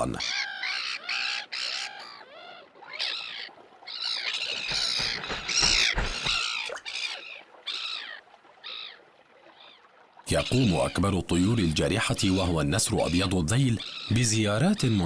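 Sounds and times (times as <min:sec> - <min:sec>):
crows cawing: 0:00.0 - 0:09.0, 0:13.8 - 0:14.2.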